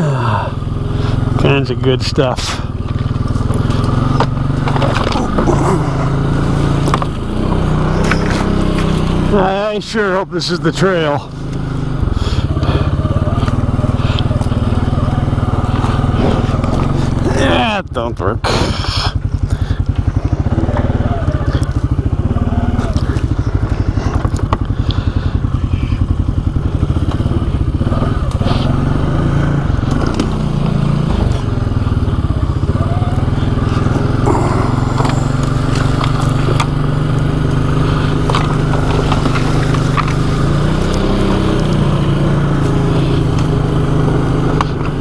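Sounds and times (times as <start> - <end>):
atv engine running: 0.0 - 45.0
branches cracking and scraping: 2.8 - 9.3, 13.4 - 17.3, 33.7 - 45.0.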